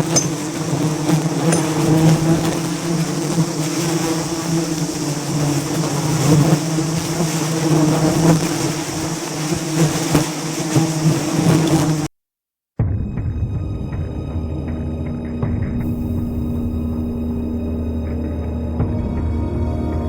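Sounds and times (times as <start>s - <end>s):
bees buzzing: 0.0s - 12.1s.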